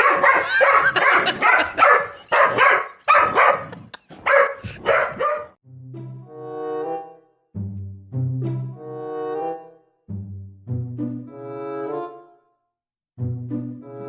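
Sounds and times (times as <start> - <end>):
dog barking: 0.0 - 5.6.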